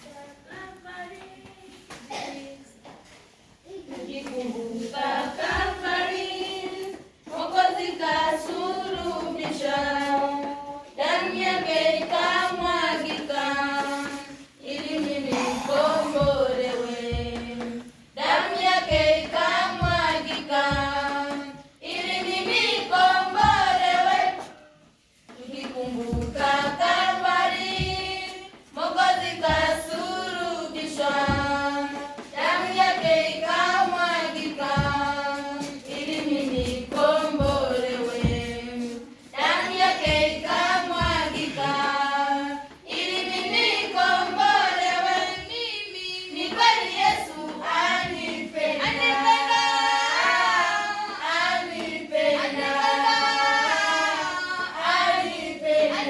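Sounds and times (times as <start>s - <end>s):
group of voices singing: 3.7s - 56.0s
low thumps keeping a beat: 14.7s - 24.4s, 25.4s - 56.0s.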